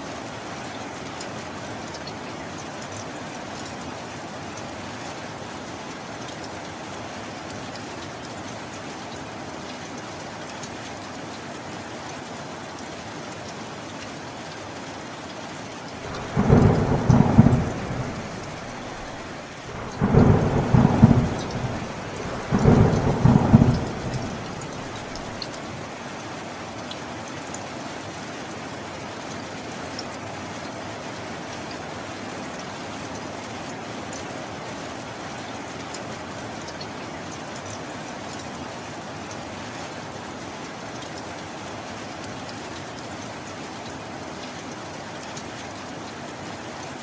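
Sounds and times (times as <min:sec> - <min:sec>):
steady rain: 0:00.0 - 0:47.0
thunder rolls: 0:16.0 - 0:25.5.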